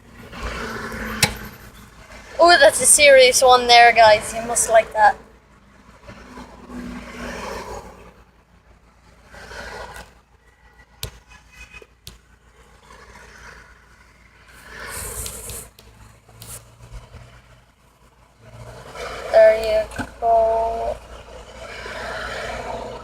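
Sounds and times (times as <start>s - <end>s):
passing car road noise: 0.0s - 23.0s.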